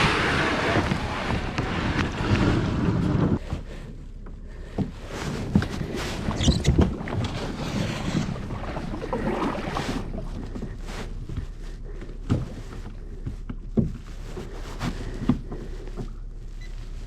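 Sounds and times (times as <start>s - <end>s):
wind on microphone: 0.0s - 3.4s.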